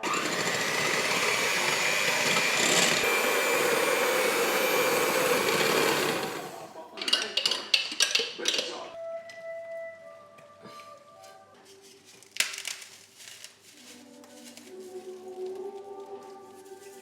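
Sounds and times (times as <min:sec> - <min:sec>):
small electric motor whirring: 0:00.0 - 0:06.7.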